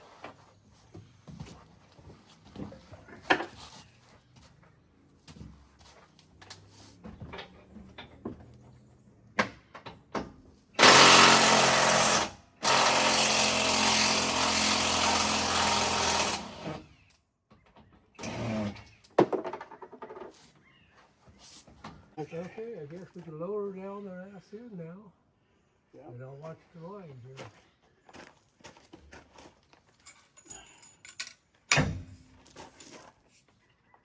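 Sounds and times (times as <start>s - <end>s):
handheld power tool running: 10.8s - 16.9s
metal tools clinking: 29.9s - 31.6s.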